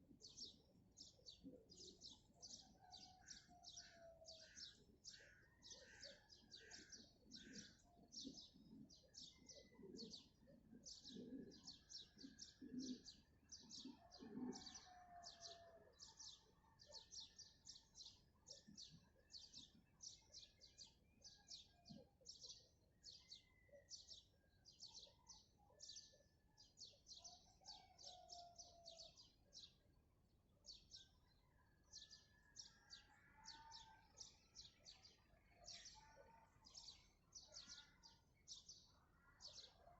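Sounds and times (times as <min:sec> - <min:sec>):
songbirds chirping: 0:00.0 - 0:39.9
dove cooing: 0:09.4 - 0:15.2.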